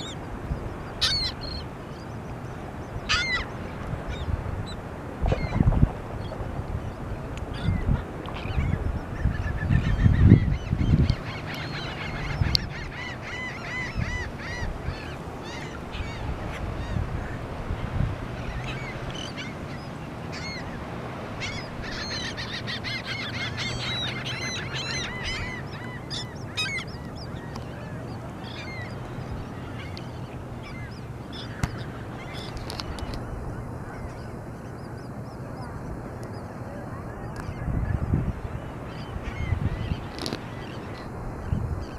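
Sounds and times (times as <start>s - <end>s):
gulls and terns calling: 0.0s - 41.9s
low thumps: 5.3s - 7.1s.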